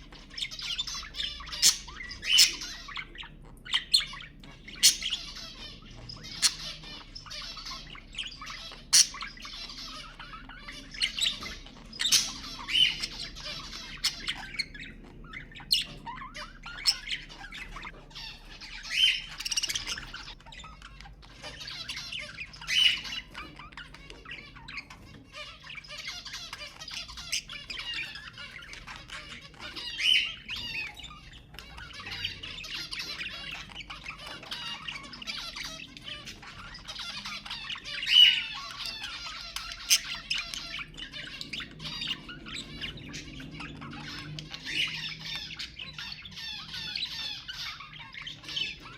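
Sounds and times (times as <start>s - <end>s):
budgerigar squawks: 0.0s - 48.9s
budgerigar warbling and chirping: 0.0s - 48.9s.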